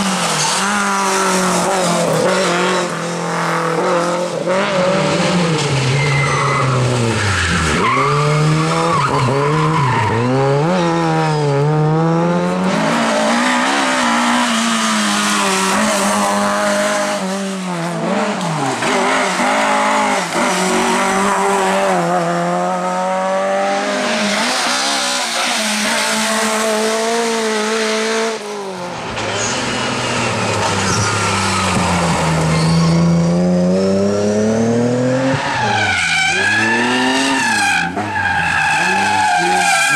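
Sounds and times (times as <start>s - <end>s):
rally car engines revving: 0.0s - 39.9s
tyres squealing: 35.4s - 39.9s.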